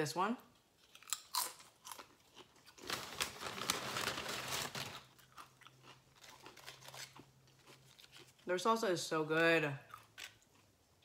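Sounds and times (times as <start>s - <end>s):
crunching and chewing chip: 0.8s - 8.5s, 9.9s - 10.7s.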